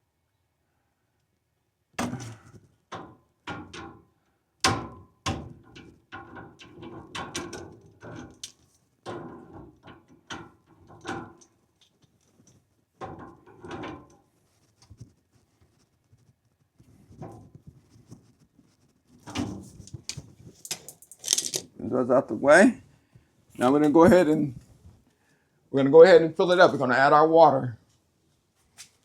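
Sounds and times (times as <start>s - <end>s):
pliers clanking on metal fittings: 20.6s - 21.7s.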